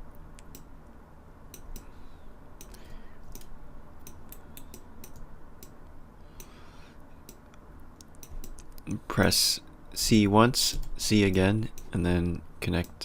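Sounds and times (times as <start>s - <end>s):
low steady background hum: 0.0s - 13.0s
computer mouse clicks: 2.6s - 5.8s, 7.2s - 8.9s.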